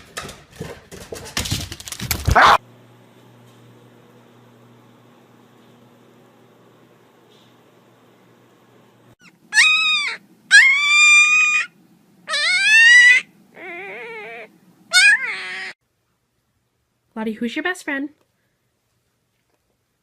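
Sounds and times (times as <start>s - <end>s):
dog whining: 2.4s - 2.6s, 9.2s - 15.8s.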